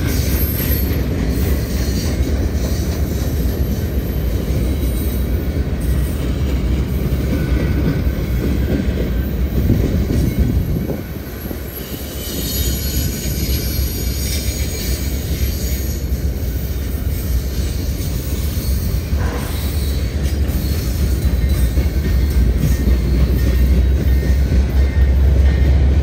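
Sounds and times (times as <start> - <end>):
train wheels rumbling on track: 0.0 - 26.0
high wheel squeal: 9.8 - 25.7.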